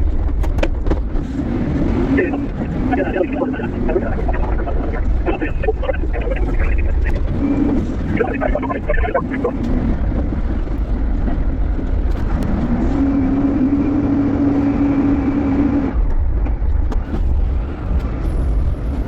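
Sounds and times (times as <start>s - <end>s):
forklift rumbling: 0.2s - 13.3s
steady hum: 1.6s - 10.7s.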